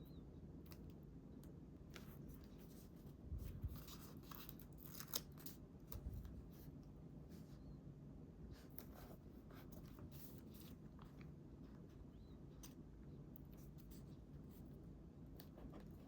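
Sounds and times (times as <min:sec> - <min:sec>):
paper rustling and clicking: 0:03.6 - 0:06.4.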